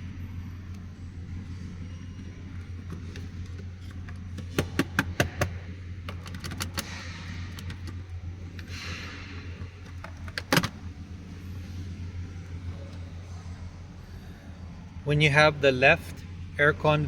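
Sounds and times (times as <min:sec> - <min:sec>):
plastic vent clicking and rattling: 0:02.6 - 0:08.7, 0:09.6 - 0:10.9.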